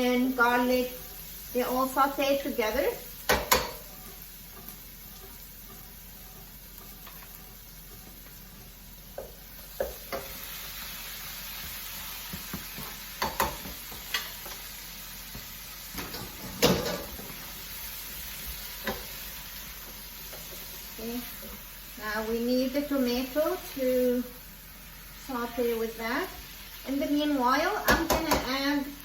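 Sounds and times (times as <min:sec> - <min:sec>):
vegetables sizzling in a frying pan: 0:00.0 - 0:29.0
utensil knocking against pan: 0:03.3 - 0:03.8, 0:12.3 - 0:14.3, 0:27.9 - 0:28.6.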